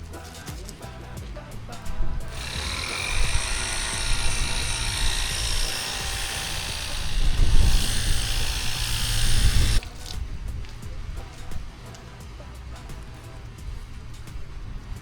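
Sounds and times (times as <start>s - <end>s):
pressure washer spray hiss: 0.0s - 15.0s
motor and pump hum: 2.2s - 11.8s.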